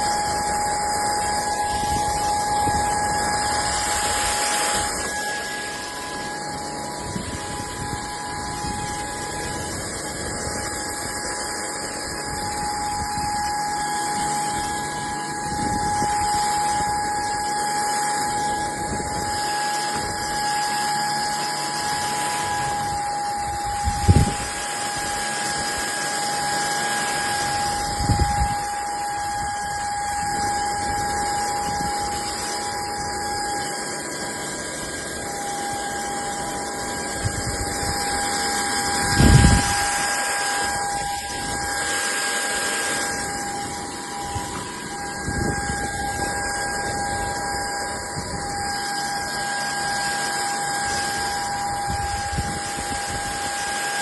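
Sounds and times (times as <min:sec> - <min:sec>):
stick vacuum cleaner running: 0:00.0 - 0:54.0.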